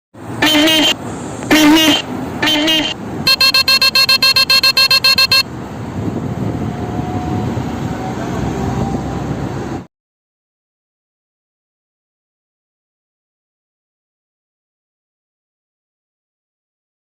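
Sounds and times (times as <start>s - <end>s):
street traffic: 0.1s - 9.9s
vehicle horn tooting: 0.4s - 5.4s.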